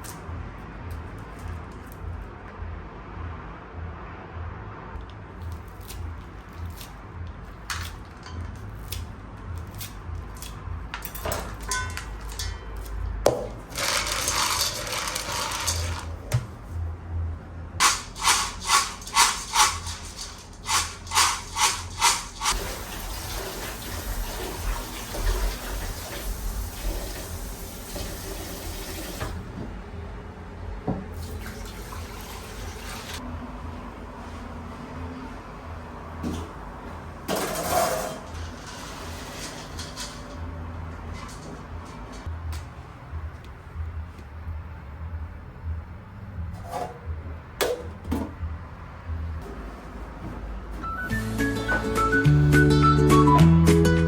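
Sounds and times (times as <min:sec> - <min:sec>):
dishes and utensils clicking: 0:10.4 - 0:16.4, 0:17.8 - 0:22.6
tap water running into sink: 0:17.8 - 0:29.4.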